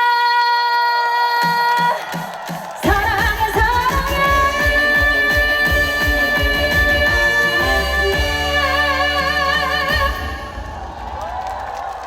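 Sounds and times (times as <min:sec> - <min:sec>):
driving drum beat: 0:01.4 - 0:11.0
live band music through pa: 0:02.9 - 0:10.5.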